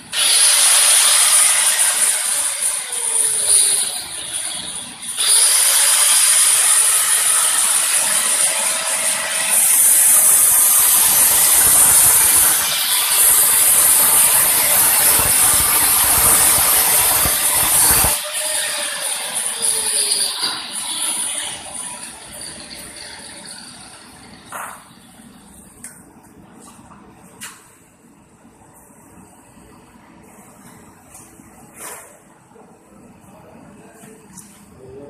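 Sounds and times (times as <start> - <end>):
welding arc crackling hiss: 0.1 - 24.8.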